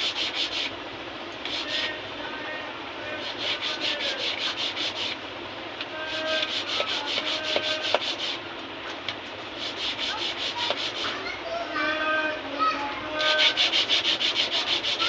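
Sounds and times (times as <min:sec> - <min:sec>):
quick hand rubbing strokes: 0:03.2 - 0:05.2, 0:06.1 - 0:08.4, 0:09.6 - 0:11.2, 0:13.2 - 0:15.0.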